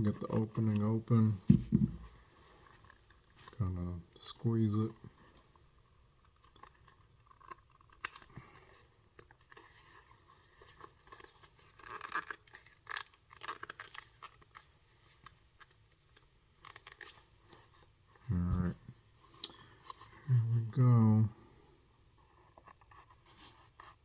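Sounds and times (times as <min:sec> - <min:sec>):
leather creaking and rustling: 0:00.1 - 0:03.7, 0:05.4 - 0:20.6.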